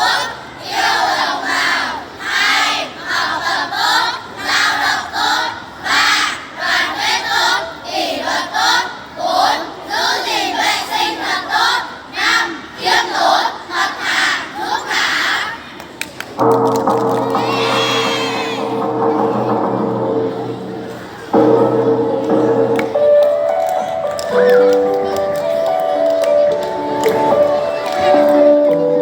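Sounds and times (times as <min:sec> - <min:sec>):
children shouting in unison: 0:17.4 - 0:18.8.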